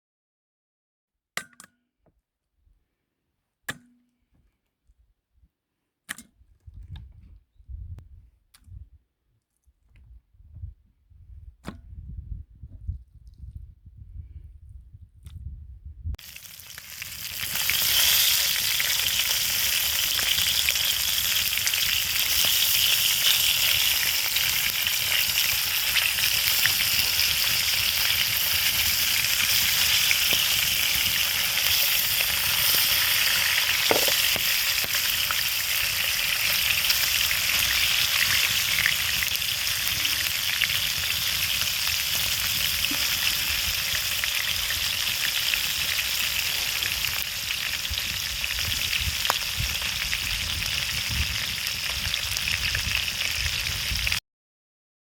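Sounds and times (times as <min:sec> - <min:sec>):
fish frying with a sizzle: 0:16.2 - 0:54.2.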